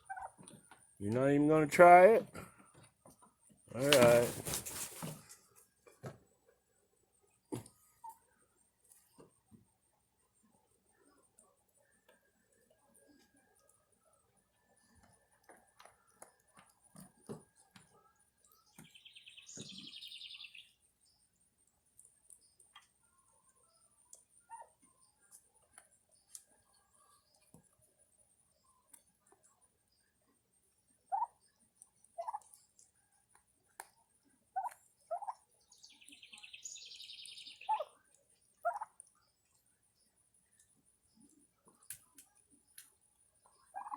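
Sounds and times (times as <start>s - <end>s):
turkeys calling: 0.0s - 0.7s, 31.1s - 31.4s, 32.2s - 32.5s, 34.6s - 35.4s, 36.6s - 38.0s, 38.6s - 39.0s, 43.7s - 43.9s
turkeys pecking: 0.0s - 1.0s, 1.8s - 43.9s.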